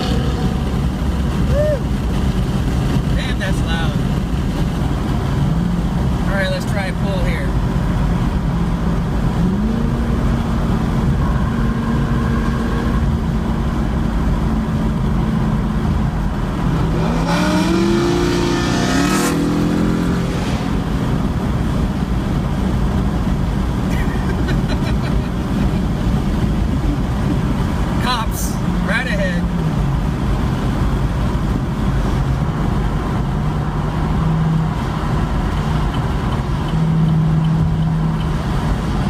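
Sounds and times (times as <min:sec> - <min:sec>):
car engine exhaust rumble: 0:00.0 - 0:39.0.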